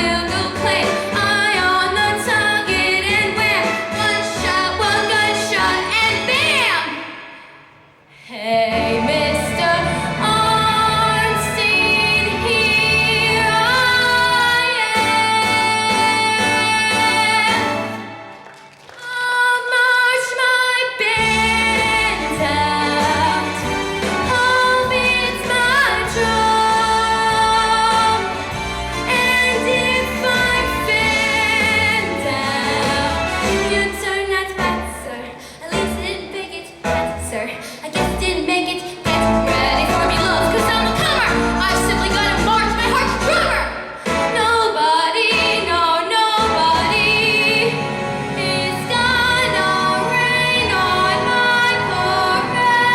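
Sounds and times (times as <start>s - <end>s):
girl singing show tune: 0.0s - 7.1s, 8.2s - 18.0s, 29.0s - 47.8s
musical accompaniment: 0.0s - 19.0s, 21.2s - 52.9s.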